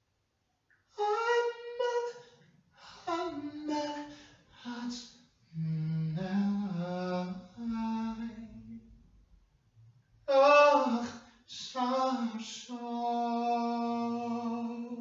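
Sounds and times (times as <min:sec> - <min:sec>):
person humming a wordless melody: 0:01.0 - 0:02.1, 0:03.0 - 0:05.0, 0:05.6 - 0:08.8.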